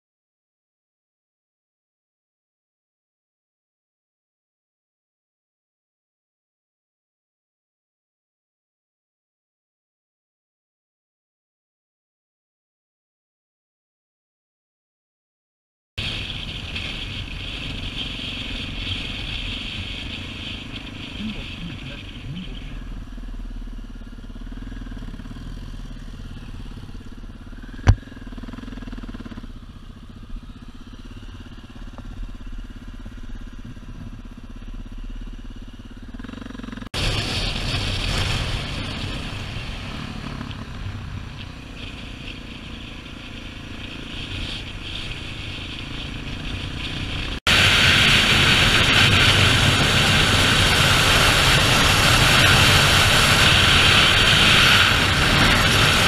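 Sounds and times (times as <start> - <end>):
motorcycles riding: 16.0 - 56.0.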